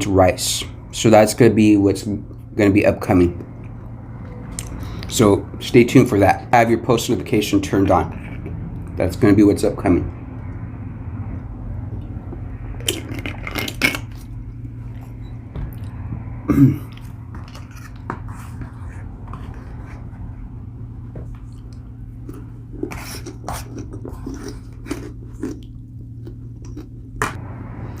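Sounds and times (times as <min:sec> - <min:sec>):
low hum: 0:00.0 - 0:28.0
person chewing food: 0:11.9 - 0:15.1, 0:21.4 - 0:27.2.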